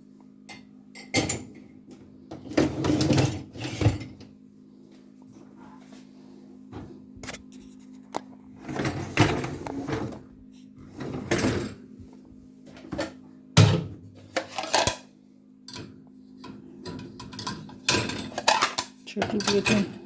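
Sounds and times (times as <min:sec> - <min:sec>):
dishes and glasses clattering: 0:16.8 - 0:20.0.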